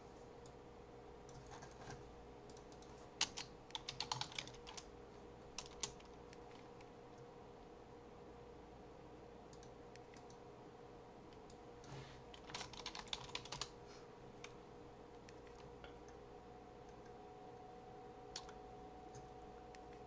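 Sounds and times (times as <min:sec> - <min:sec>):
faint steady hum: 0:00.0 - 0:20.0
computer keyboard typing: 0:01.3 - 0:04.9, 0:05.5 - 0:06.9, 0:09.5 - 0:10.4, 0:12.3 - 0:13.7, 0:15.2 - 0:15.8.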